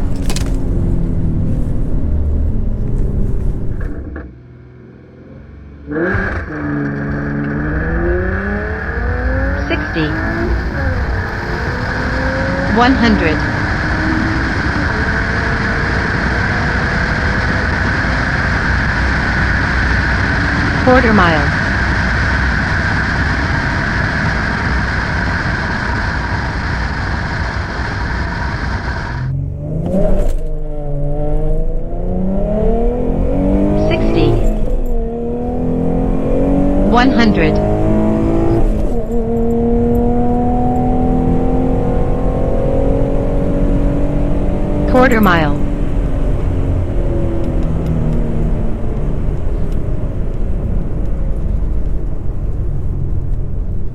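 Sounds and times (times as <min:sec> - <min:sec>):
car engine at full throttle: 0:00.0 - 0:53.9.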